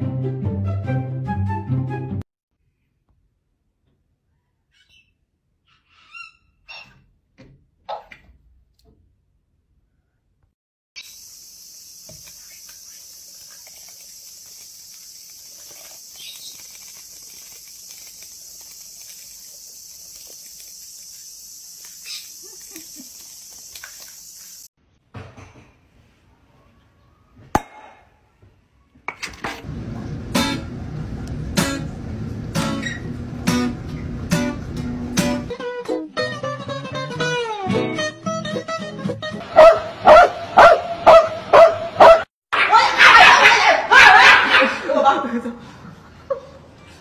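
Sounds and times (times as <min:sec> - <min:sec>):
steady hiss: 0:11.0 - 0:24.7
acoustic guitar strumming: 0:30.3 - 0:30.8, 0:31.6 - 0:35.5.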